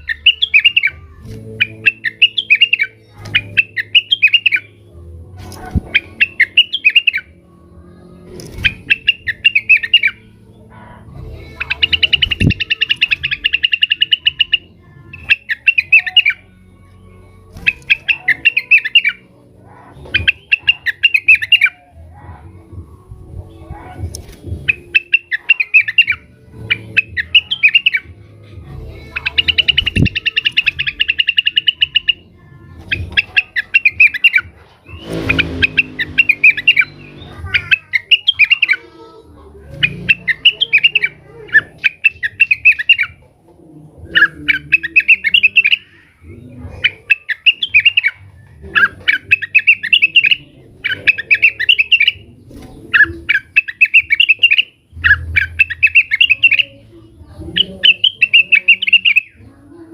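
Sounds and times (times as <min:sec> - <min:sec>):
harsh bird call: 0:00.0 - 0:04.8, 0:05.8 - 0:07.3, 0:08.6 - 0:10.4, 0:11.5 - 0:16.5, 0:17.6 - 0:19.2, 0:19.9 - 0:22.0, 0:24.7 - 0:28.1, 0:29.1 - 0:32.3, 0:32.9 - 0:38.9, 0:39.7 - 0:43.2, 0:44.2 - 0:46.2, 0:46.8 - 0:52.2, 0:52.9 - 0:56.6, 0:57.5 - 0:59.4
bird buzzy trill: 0:00.0 - 0:07.4, 0:08.3 - 0:10.5, 0:11.2 - 0:19.3, 0:19.9 - 0:21.9, 0:24.2 - 0:28.1, 0:28.8 - 0:39.1, 0:39.7 - 0:43.2, 0:44.1 - 0:52.2, 0:52.9 - 0:56.7, 0:57.5 - 0:59.4
bird chattering song: 0:00.0 - 0:07.4, 0:08.4 - 0:22.0, 0:23.8 - 0:39.1, 0:39.7 - 0:43.3, 0:44.0 - 0:59.9.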